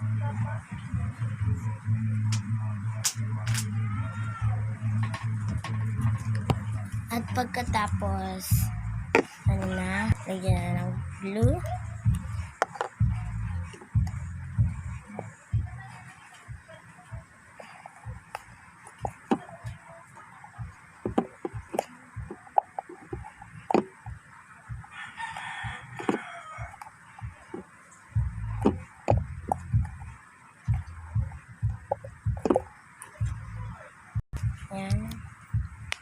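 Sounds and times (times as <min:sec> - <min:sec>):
rooster crowing: 0:24.9 - 0:27.3.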